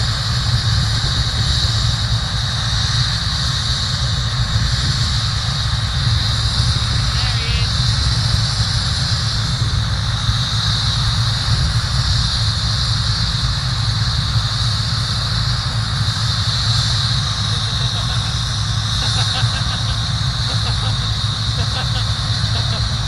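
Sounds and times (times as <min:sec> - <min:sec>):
helicopter high whine: 0:00.0 - 0:23.0
helicopter rotor beating: 0:00.0 - 0:23.0.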